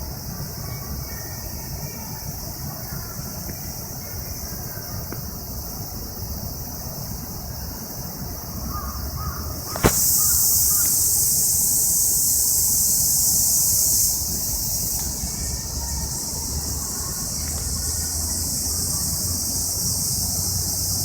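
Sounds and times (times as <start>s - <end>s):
cicadas buzzing: 0.0s - 21.0s
sharp click: 9.7s - 10.4s.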